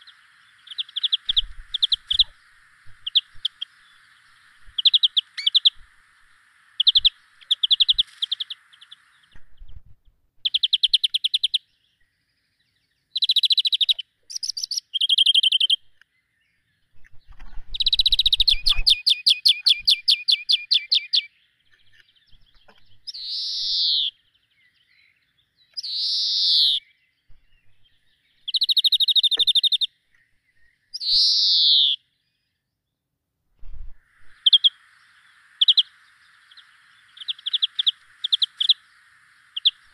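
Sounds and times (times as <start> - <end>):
downward-sliding bird calls: 0.0 - 9.8, 34.0 - 39.9
small birds singing: 0.0 - 33.2, 33.8 - 39.9.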